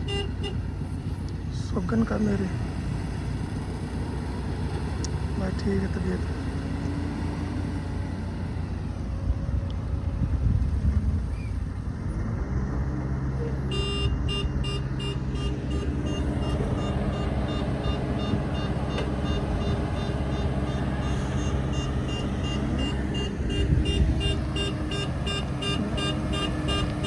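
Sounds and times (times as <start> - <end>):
diesel engine droning: 0.0 - 27.0
reversing alarm beeping: 13.7 - 27.0.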